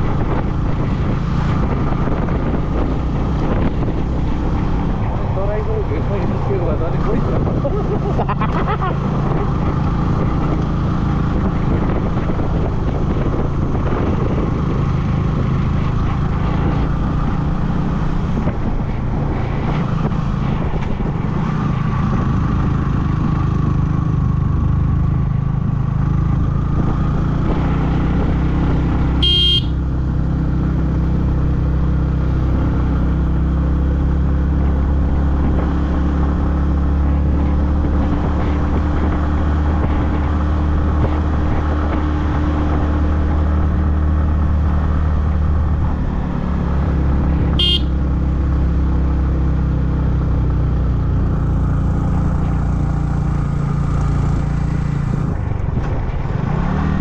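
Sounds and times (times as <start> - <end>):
motorcycle engine running: 0.0 - 57.0
horn beep: 29.2 - 29.8, 47.6 - 47.9.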